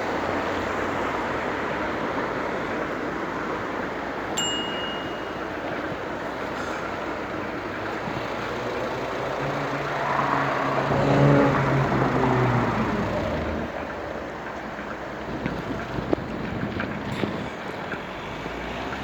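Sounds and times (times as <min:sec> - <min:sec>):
bicycle road rush: 0:00.0 - 0:19.0
wind: 0:00.0 - 0:19.0
motor vehicle engine passing: 0:06.5 - 0:14.2.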